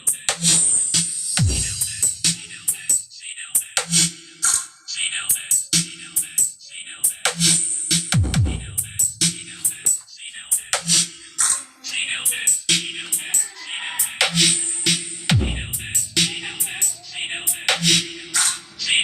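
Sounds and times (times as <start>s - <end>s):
electronic dance music over loudspeakers: 0.0s - 19.0s.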